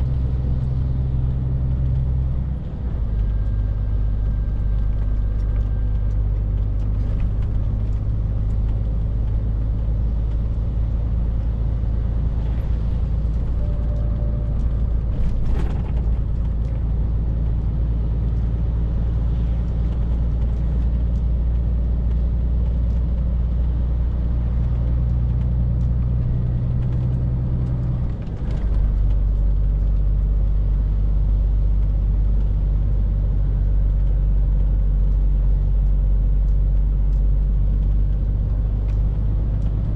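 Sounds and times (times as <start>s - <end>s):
lorry diesel engine droning: 0.0s - 21.6s.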